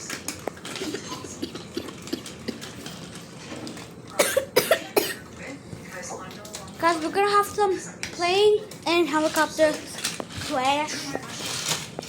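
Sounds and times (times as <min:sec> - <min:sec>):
small hard toys clicking together: 0:00.0 - 0:03.9, 0:08.0 - 0:12.0.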